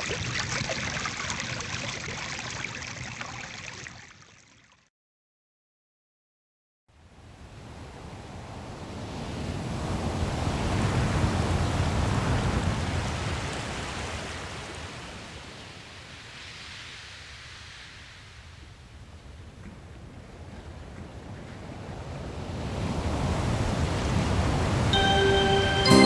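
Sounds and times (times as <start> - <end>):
ocean wave: 22.8 - 26.0.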